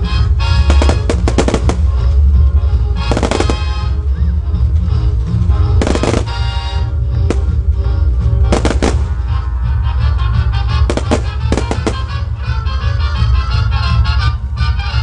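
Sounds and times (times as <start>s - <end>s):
fireworks bangs: 0.5s - 2.2s, 3.0s - 4.0s, 5.8s - 9.5s, 10.8s - 12.6s
loud music with heavy bass: 5.3s - 15.0s.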